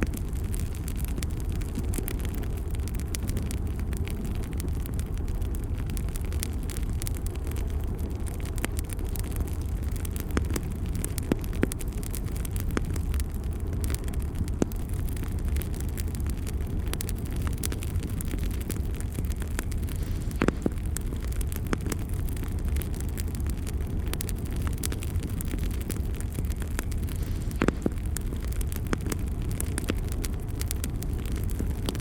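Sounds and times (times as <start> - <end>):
campfire flame rumble: 0.0 - 32.0
fire crackling and popping: 0.0 - 32.0.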